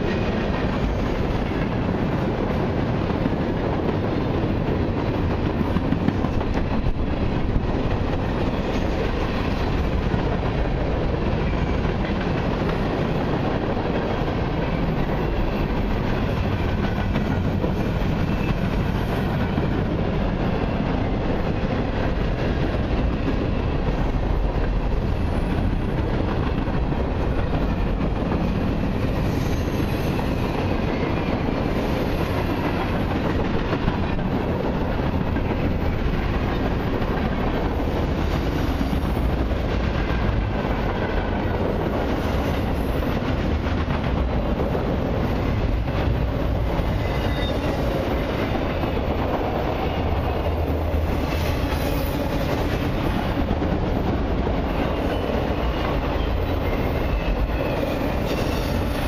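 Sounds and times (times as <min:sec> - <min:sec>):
steel wheels rumbling on rails: 0:00.0 - 0:59.0
faint wheel squeal: 0:47.0 - 0:47.8.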